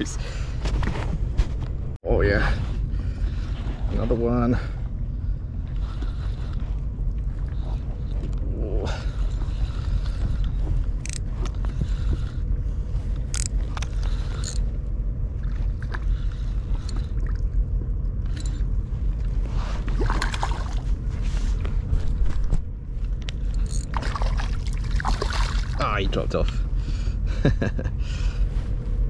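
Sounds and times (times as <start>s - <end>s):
wind and water rumble: 0.0s - 29.0s
fishing reel clicks: 13.3s - 13.5s, 14.3s - 14.6s.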